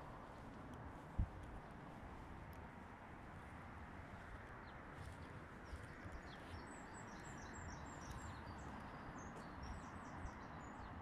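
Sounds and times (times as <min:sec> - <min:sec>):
low outdoor background noise: 0:00.0 - 0:11.0
small birds chirping: 0:04.2 - 0:11.0.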